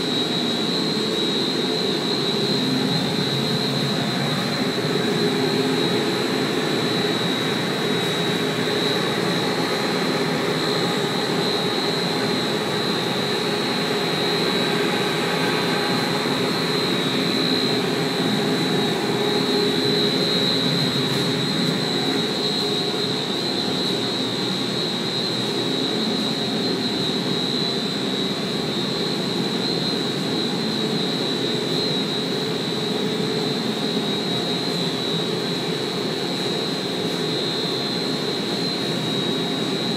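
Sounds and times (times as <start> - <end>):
boilers roaring: 0.0 - 24.8
high-pitched whine: 0.0 - 39.9.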